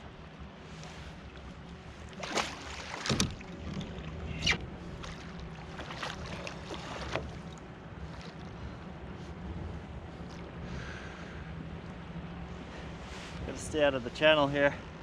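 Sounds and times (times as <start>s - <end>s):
steady low hum: 0.0s - 15.0s
water splashing: 2.0s - 8.4s.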